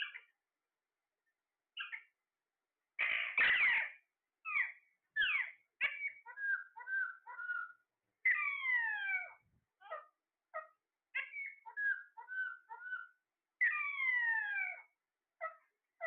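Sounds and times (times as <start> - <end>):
parrot short chirps: 3.0 - 3.9
parrot long falling calls: 11.2 - 14.8.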